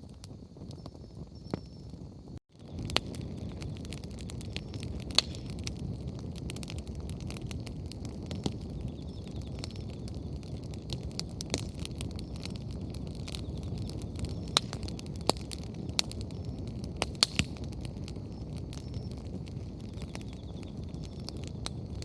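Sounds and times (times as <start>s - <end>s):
bonfire crackling: 0.0s - 22.0s
low rumble of fire: 0.0s - 22.0s
loud sharp pops: 5.0s - 5.7s.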